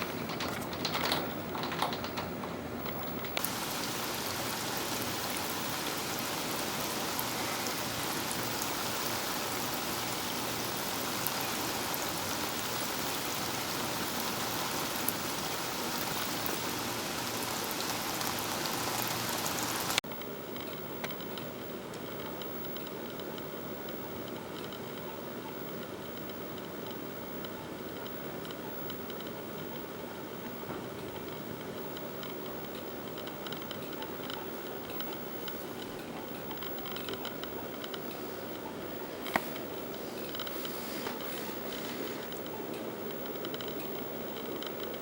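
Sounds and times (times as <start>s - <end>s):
steady rain falling: 3.4s - 20.0s.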